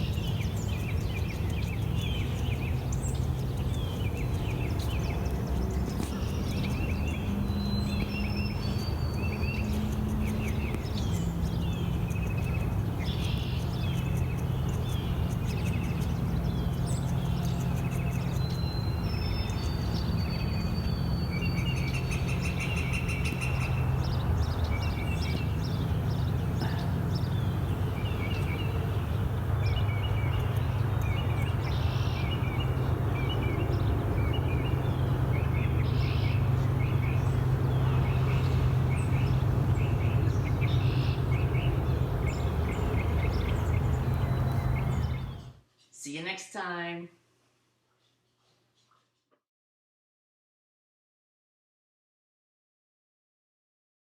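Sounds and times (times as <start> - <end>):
steady low hum: 0.0 - 45.6
songbirds chirping: 0.0 - 46.9.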